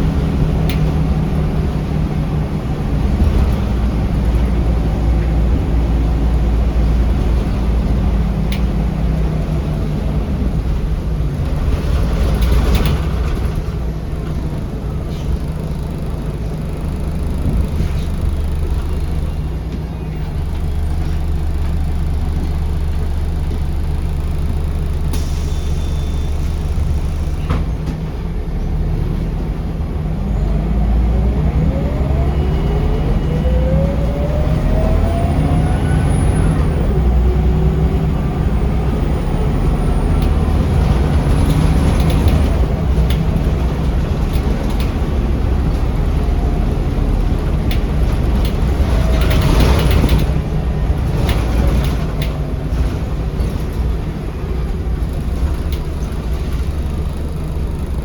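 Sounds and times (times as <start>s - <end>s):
bus engine rumbling: 0.0s - 58.0s
rising engine whine: 13.1s - 27.6s, 28.4s - 52.0s
air hiss: 25.1s - 26.6s.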